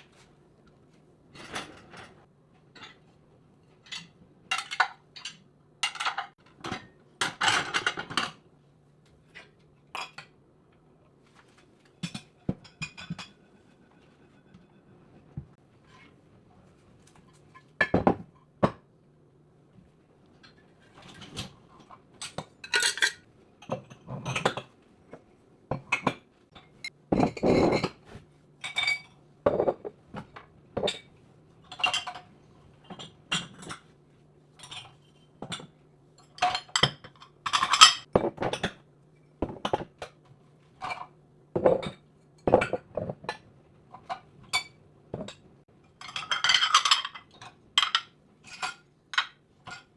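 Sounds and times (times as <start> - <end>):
dishes and cutlery clinking: 20.4 - 24.7, 34.6 - 38.8, 40.8 - 49.9.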